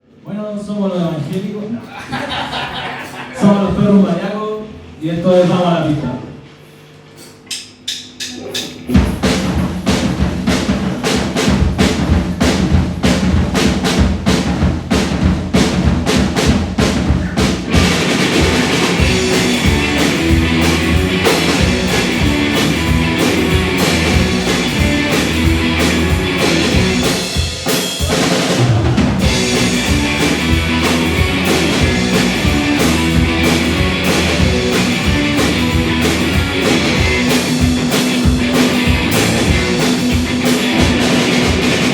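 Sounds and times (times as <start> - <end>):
drum beat: 7.6 - 41.9
rock band playing: 8.3 - 41.9
electric guitars: 17.0 - 41.9.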